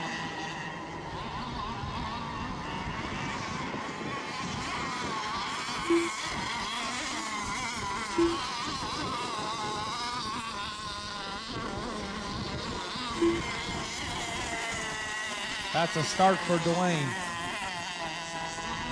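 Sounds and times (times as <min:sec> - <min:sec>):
model boat engines buzzing: 0:00.0 - 0:18.9
short beeps: 0:05.9 - 0:06.2, 0:08.2 - 0:08.4, 0:13.2 - 0:13.6.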